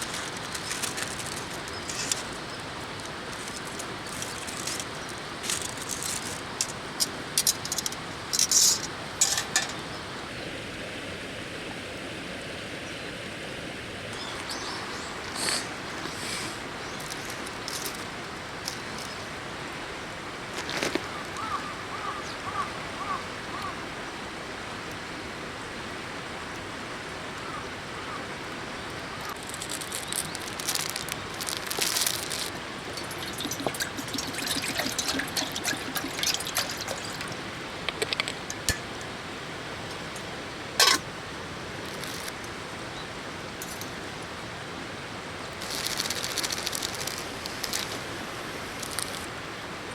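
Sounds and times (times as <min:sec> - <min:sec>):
handling clicks and rustles: 0:00.0 - 0:09.9, 0:17.0 - 0:19.2, 0:29.3 - 0:39.2, 0:39.8 - 0:41.0, 0:41.8 - 0:42.5, 0:43.6 - 0:44.0, 0:45.6 - 0:48.1
river water running: 0:00.0 - 0:49.9.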